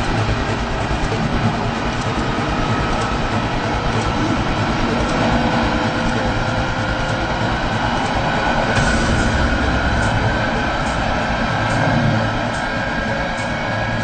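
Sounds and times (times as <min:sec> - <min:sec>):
faint rising whine: 0:00.0 - 0:14.0
train wheels rolling on rails: 0:00.0 - 0:14.0.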